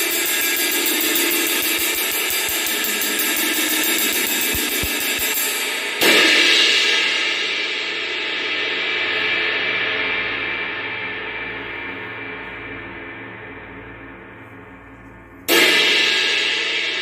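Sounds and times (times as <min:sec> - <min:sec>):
ride cymbal played with stick: 0:00.0 - 0:14.6, 0:15.5 - 0:17.0.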